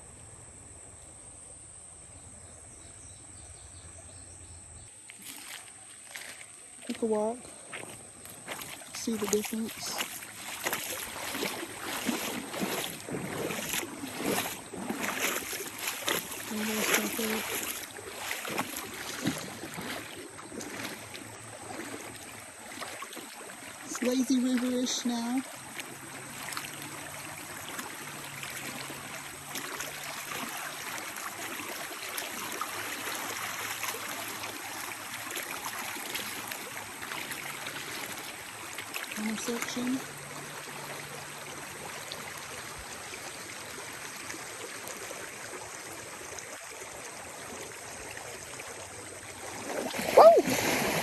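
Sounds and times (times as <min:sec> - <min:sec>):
footsteps wading through water: 0:04.9 - 0:51.0
water splashing and sloshing: 0:05.0 - 0:51.0.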